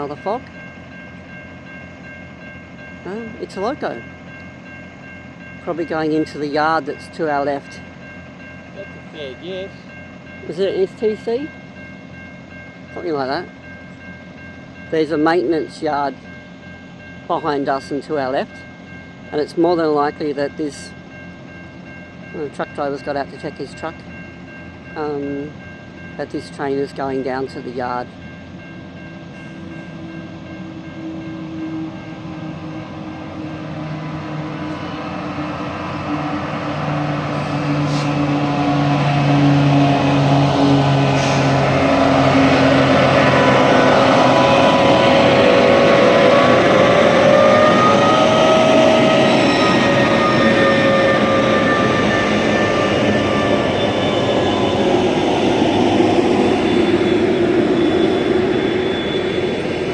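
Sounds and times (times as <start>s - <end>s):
diesel locomotive engine drone: 0.0s - 59.9s
heavy train running noise: 0.0s - 59.9s
wavering whining tones: 28.2s - 59.9s.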